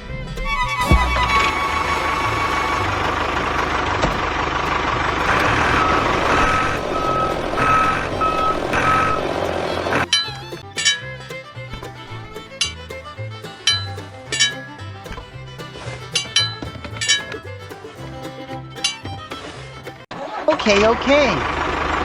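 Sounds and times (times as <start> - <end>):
truck engine running: 0.5 - 10.0, 21.4 - 22.0
reversing alarm beeping: 5.2 - 9.5.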